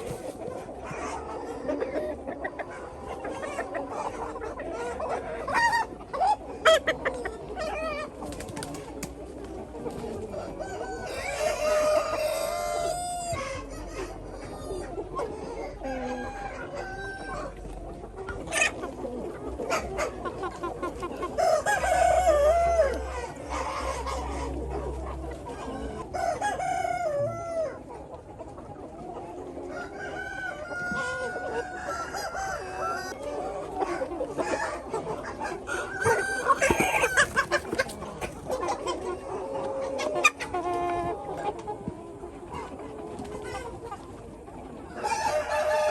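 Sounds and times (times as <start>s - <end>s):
chickens clucking: 0.0s - 45.9s
rooster crowing: 10.4s - 13.9s, 35.7s - 37.6s, 45.0s - 45.9s
chicken squawks: 33.8s - 39.1s.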